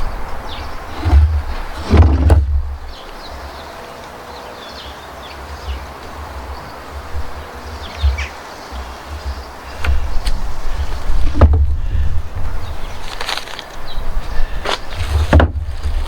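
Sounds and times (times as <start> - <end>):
wind buffeting microphone: 0.0 - 3.6, 5.6 - 16.0
handling thump: 0.9 - 2.8, 15.1 - 16.0.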